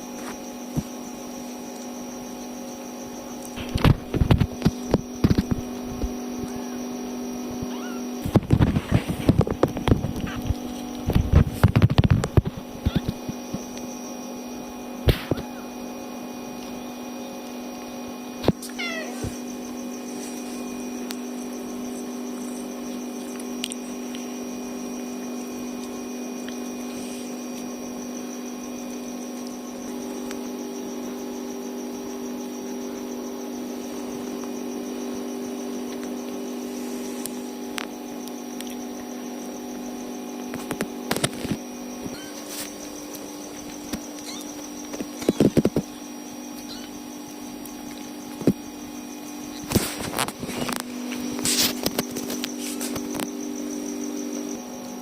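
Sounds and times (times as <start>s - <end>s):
steady hum: 0.0s - 55.0s
kitten mewing: 7.6s - 8.2s, 12.8s - 13.2s, 18.7s - 19.4s, 44.2s - 44.5s, 46.6s - 46.9s.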